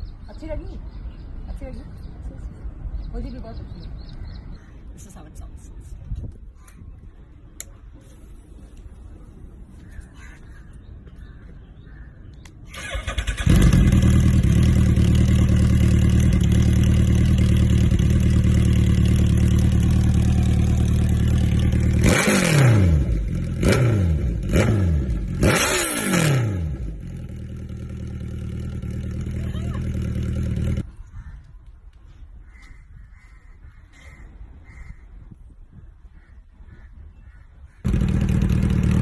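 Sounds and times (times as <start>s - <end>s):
motorcycle engine revving: 12.7s - 30.9s, 37.8s - 39.0s
motorcycle engine idling: 12.8s - 23.8s, 26.8s - 30.9s, 37.8s - 39.0s.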